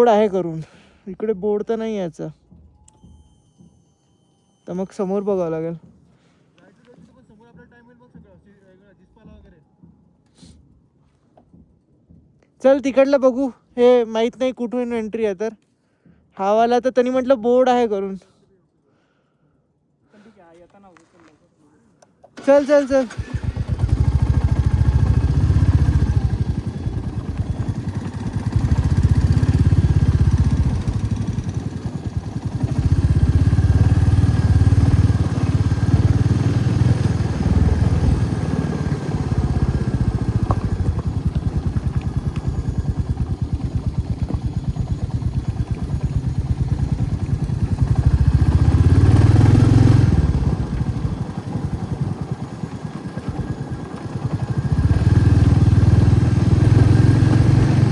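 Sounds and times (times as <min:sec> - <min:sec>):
motorcycle engine running: 0:22.4 - 0:57.9.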